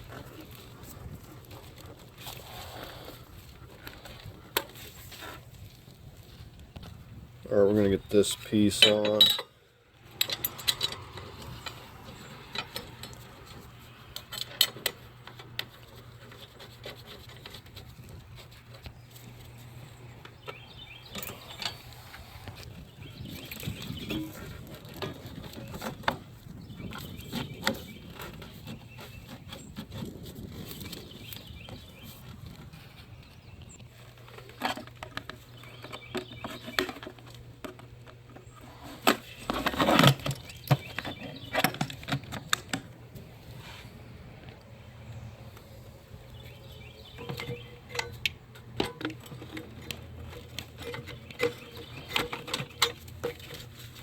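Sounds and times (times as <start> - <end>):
clicks knocks and rubbing: 47.1 - 54.0.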